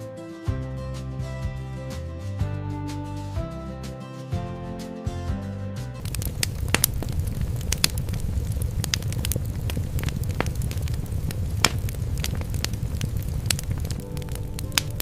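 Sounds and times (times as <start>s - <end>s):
fire crackles and pops: 6.0s - 15.0s
fire roaring: 6.0s - 15.0s.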